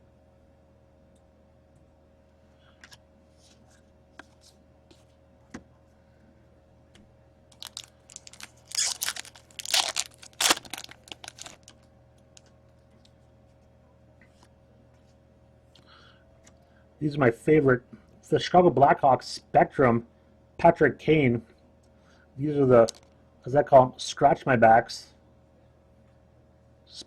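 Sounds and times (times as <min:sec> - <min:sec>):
foil wrapper tearing and crinkling: 0:07.5 - 0:11.8.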